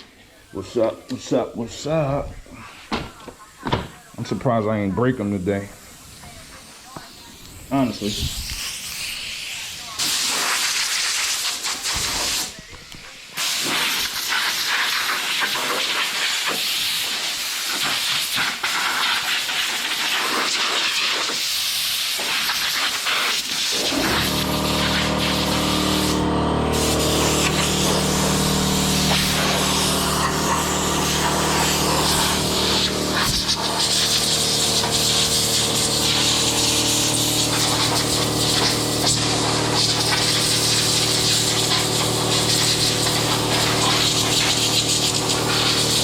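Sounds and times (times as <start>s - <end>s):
compressed air hissing: 5.7s - 12.6s, 13.2s - 46.0s
steady motor hum: 23.7s - 46.0s.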